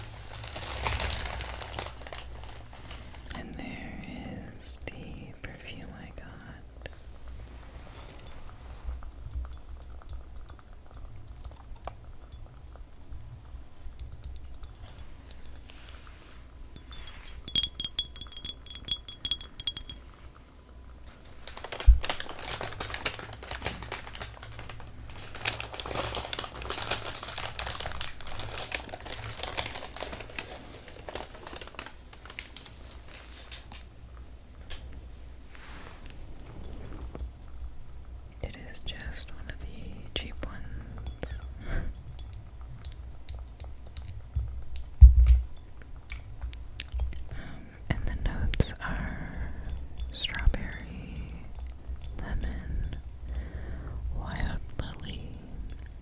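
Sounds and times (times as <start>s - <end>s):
fine crackly rustling: 0.0s - 17.5s, 20.1s - 47.8s
fingernails tapping: 16.9s - 20.0s.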